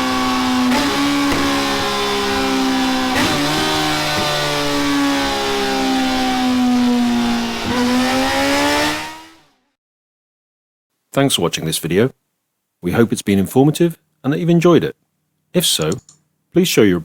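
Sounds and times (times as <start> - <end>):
motorcycle engine running hard: 0.0 - 9.5.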